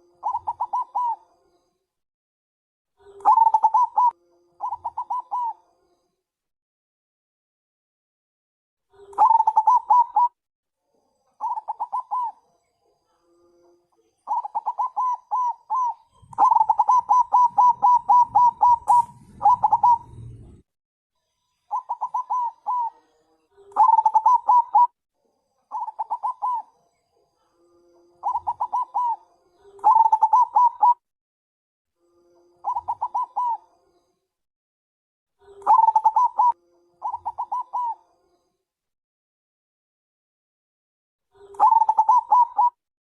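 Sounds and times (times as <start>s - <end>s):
dove cooing: 0.0s - 1.2s, 3.0s - 5.6s, 8.9s - 10.4s, 11.4s - 12.4s, 14.3s - 20.6s, 21.7s - 23.0s, 23.7s - 25.0s, 25.7s - 26.7s, 28.2s - 31.0s, 32.6s - 33.7s, 35.4s - 38.0s, 41.4s - 42.8s
faint low rumble: 17.5s - 20.7s.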